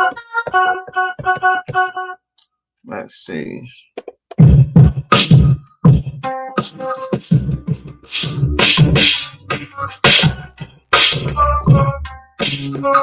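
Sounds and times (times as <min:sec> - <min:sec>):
hip-hop beat: 0:04.4 - 0:13.0
short pitched melodic notes: 0:11.3 - 0:12.2.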